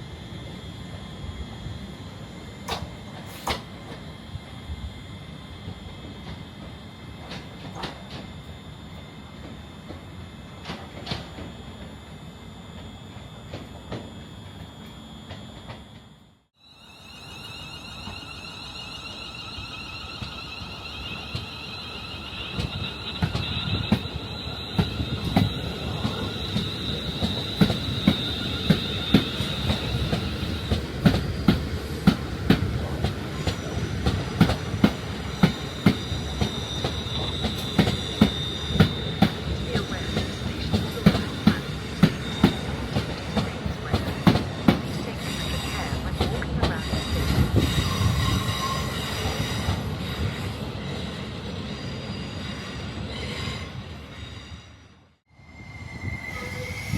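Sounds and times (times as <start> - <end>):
train wheels clicking over rail joints: 2.6 - 4.1, 22.5 - 48.2
high wheel squeal: 16.6 - 30.8, 33.3 - 44.2, 46.7 - 56.9.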